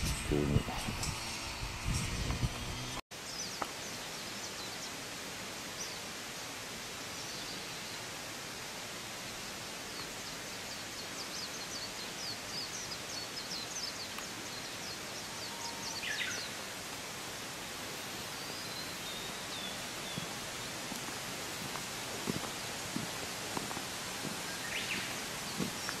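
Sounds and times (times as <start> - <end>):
steady outdoor hiss: 0.0 - 26.0
small birds chirping: 9.9 - 16.8, 18.0 - 26.0.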